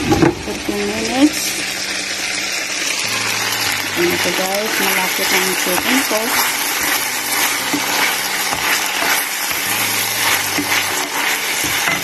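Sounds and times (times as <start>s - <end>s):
chicken sizzling in hot oil: 0.0s - 12.0s
wooden spatula stirring: 4.0s - 12.0s.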